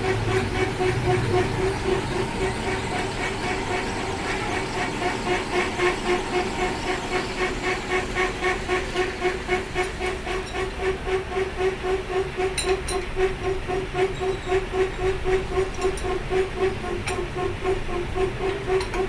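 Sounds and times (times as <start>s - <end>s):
lathe pulsing hum: 0.0s - 19.0s.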